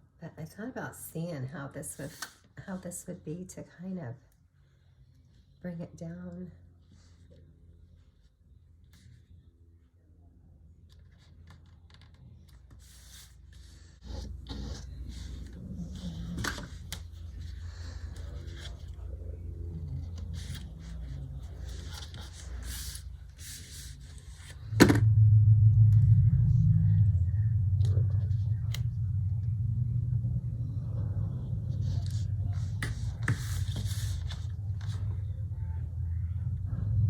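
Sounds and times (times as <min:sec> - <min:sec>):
low steady hum: 0:00.0 - 0:37.0
paper rustling and scraping: 0:10.9 - 0:24.8, 0:31.6 - 0:35.4
low rumble: 0:13.6 - 0:37.0.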